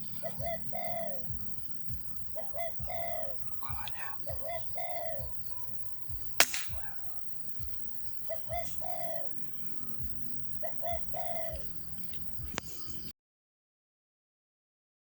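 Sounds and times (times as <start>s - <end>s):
dove cooing: 0.0s - 13.1s
sharp crack: 5.3s - 12.7s.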